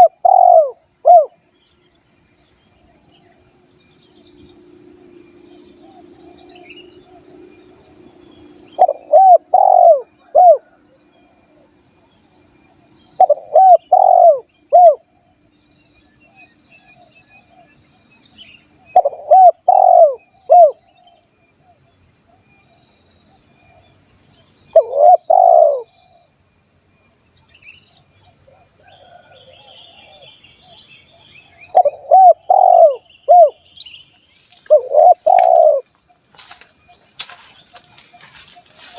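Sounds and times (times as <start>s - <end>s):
dove cooing: 0.0s - 1.4s, 8.7s - 11.0s, 13.2s - 15.1s, 18.9s - 20.9s, 24.7s - 26.2s, 28.5s - 30.3s, 31.6s - 33.6s, 34.6s - 35.9s
high insect buzz: 30.4s - 38.9s.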